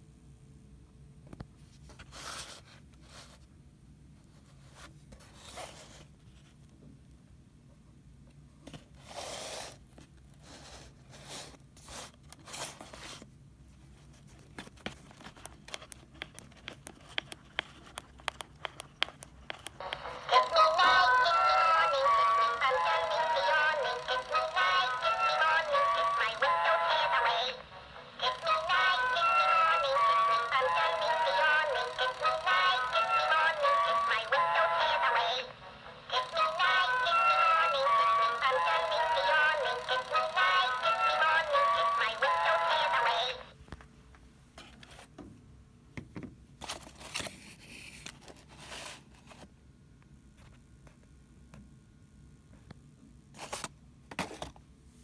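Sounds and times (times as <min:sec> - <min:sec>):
tinny toy speaker song: 0:19.8 - 0:43.5.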